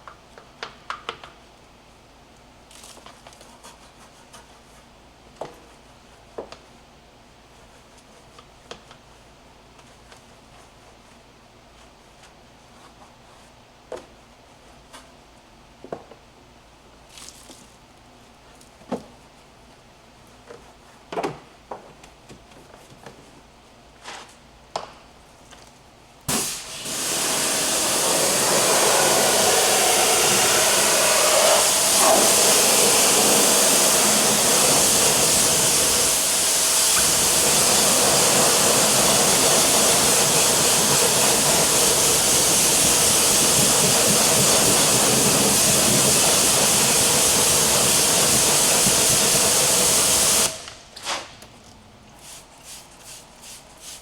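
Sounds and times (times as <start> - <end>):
car washing jet hissing: 26.3 - 50.7.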